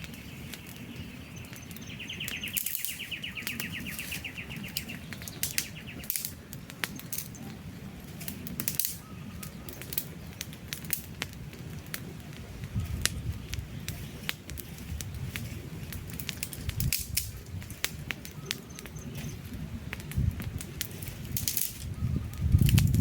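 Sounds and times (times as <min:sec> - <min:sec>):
bird trilling: 0:00.0 - 0:06.2
campfire crackling and popping: 0:00.0 - 0:23.0
low rumble of flame: 0:00.0 - 0:23.0.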